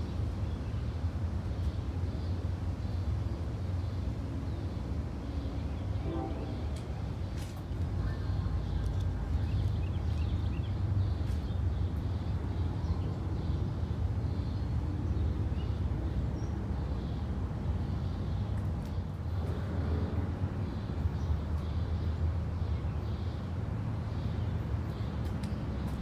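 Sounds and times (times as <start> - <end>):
distant train rumble: 4.8 - 11.0.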